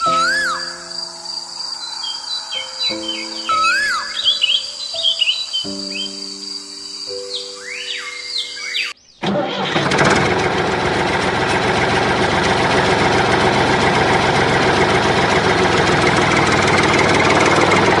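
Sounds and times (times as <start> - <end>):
loud engine running: 9.2 - 18.0.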